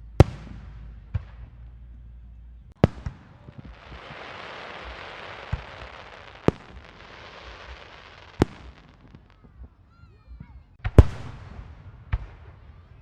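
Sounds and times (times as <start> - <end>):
fireworks bangs: 2.8 - 9.5
fireworks crackling: 2.8 - 9.5.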